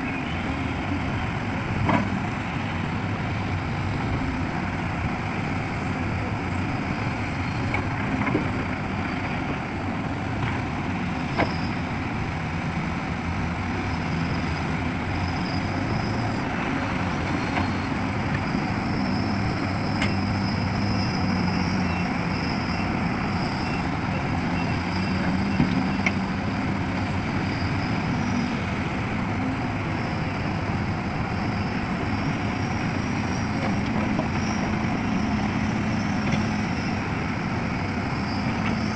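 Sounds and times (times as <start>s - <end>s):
heavy diesel machinery running: 0.0s - 38.9s.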